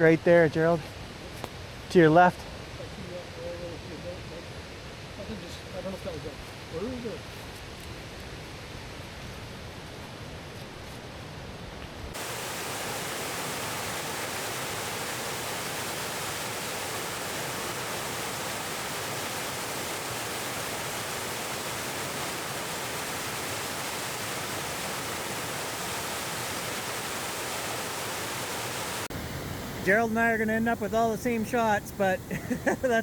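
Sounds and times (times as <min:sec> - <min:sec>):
waterfall rushing: 0:12.2 - 0:30.0.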